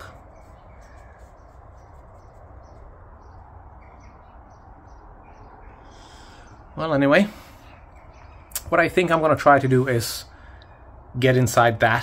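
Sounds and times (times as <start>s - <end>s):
small bird chirps: 0.0s - 6.8s.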